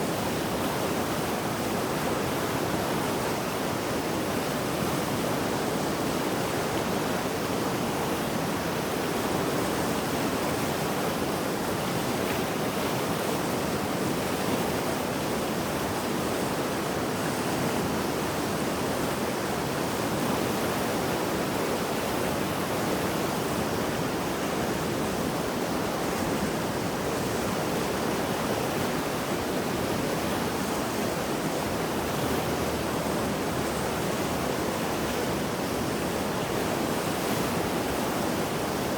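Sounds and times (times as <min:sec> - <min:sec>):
river rushing roar: 0:00.0 - 0:38.9.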